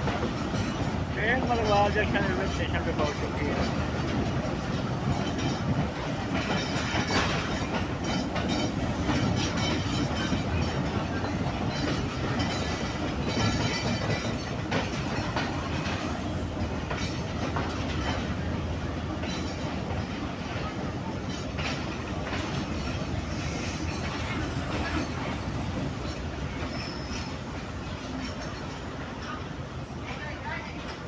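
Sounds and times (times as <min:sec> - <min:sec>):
train wheels rumbling on rails: 0:00.0 - 0:31.0
faint wheel squeal: 0:26.5 - 0:27.4.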